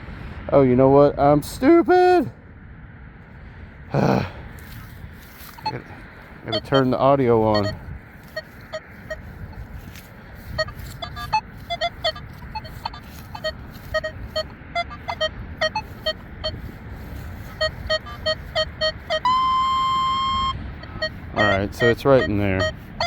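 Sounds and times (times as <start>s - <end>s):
wind rumble on microphone: 0.0s - 23.0s
metal detector held tone: 5.4s - 10.0s, 10.6s - 23.0s
metal detector beeps: 5.4s - 23.0s.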